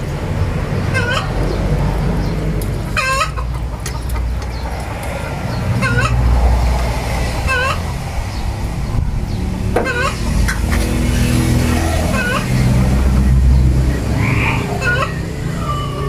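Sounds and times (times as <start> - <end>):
chickens clucking: 0.1 - 16.0.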